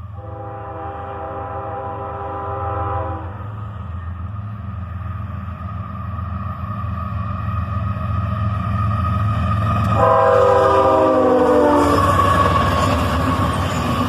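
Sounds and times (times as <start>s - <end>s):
locomotive air horn: 0.0s - 3.6s, 10.0s - 12.9s
freight train rumble: 0.0s - 14.0s.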